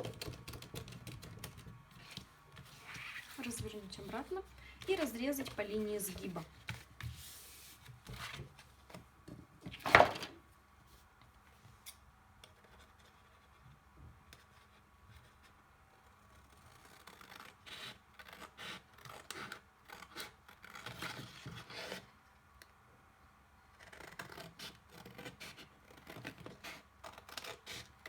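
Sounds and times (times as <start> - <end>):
scissors cutting cardboard: 0.0 - 7.4, 14.4 - 22.1, 23.7 - 28.0
cardboard handling sound: 1.9 - 11.1.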